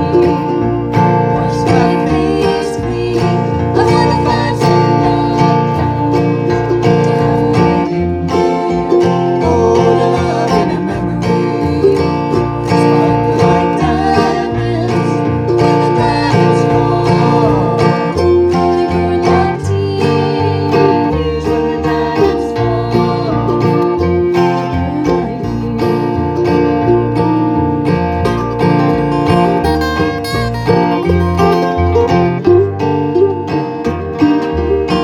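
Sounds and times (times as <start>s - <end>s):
person singing: 0.0s - 28.0s
bluegrass string band: 0.0s - 35.0s.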